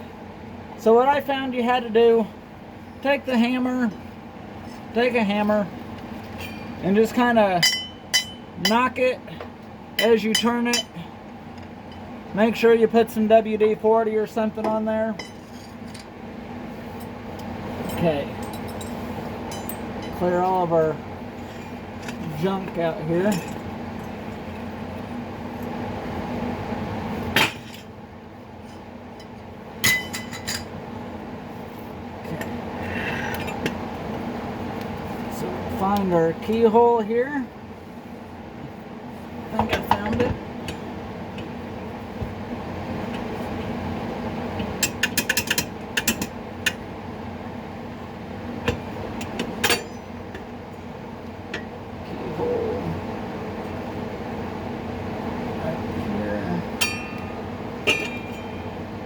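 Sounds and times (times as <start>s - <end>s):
steady hum: 0.0s - 59.0s
ringing metal clink: 7.6s - 8.5s, 19.5s - 20.2s, 56.8s - 58.8s
metal tools clanking: 7.6s - 8.9s, 17.8s - 20.8s, 21.4s - 24.2s, 28.7s - 30.7s, 49.4s - 50.2s, 56.7s - 58.8s.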